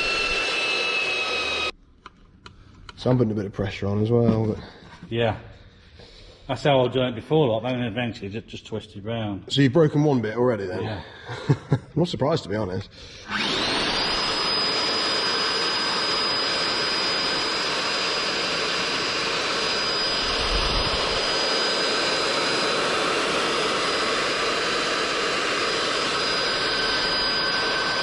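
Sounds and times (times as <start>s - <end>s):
electric drill boring through steel: 0.0s - 1.7s, 13.2s - 28.0s.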